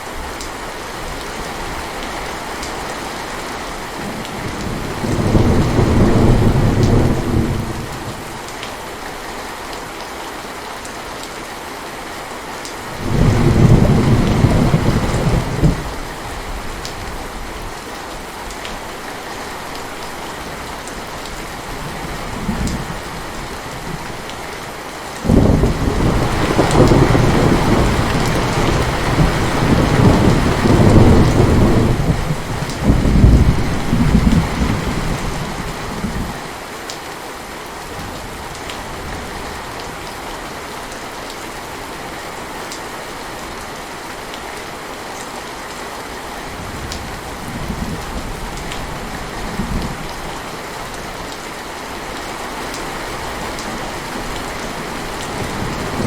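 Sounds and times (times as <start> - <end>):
heavy rain: 0.0 - 56.0
thunder rumbling: 4.3 - 8.4, 13.0 - 16.0, 25.2 - 36.4.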